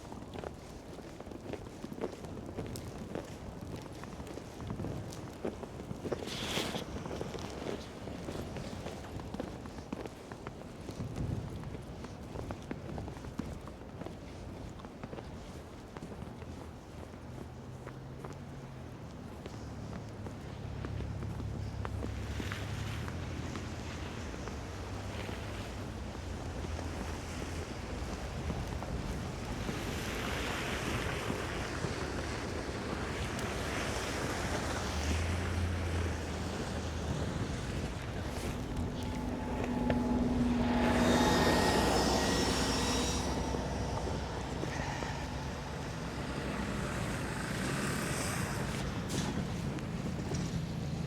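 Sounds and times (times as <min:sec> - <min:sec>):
rushing background hum: 0:20.4 - 0:51.0
motor vehicle passing: 0:21.2 - 0:51.0.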